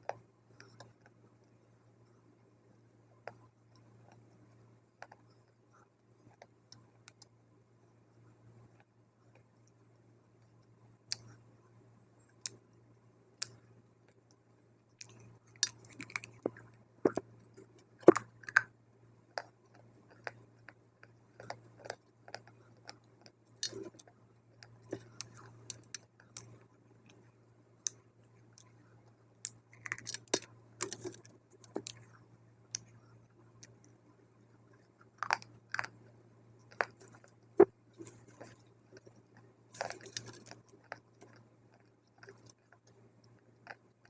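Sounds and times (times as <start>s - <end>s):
faint low hum: 0.0s - 44.0s
crunching and chewing dry clay: 15.0s - 18.7s, 19.4s - 44.0s.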